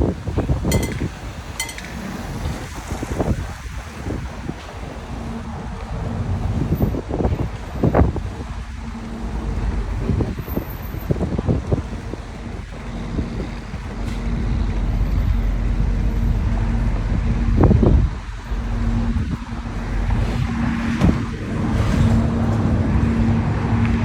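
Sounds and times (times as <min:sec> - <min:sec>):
car engine running: 0:05.1 - 0:24.0.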